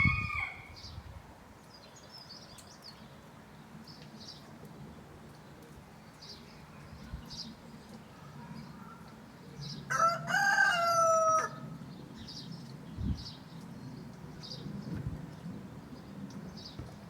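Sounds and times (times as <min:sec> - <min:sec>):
rooster crowing: 0:00.0 - 0:00.8, 0:09.9 - 0:11.7.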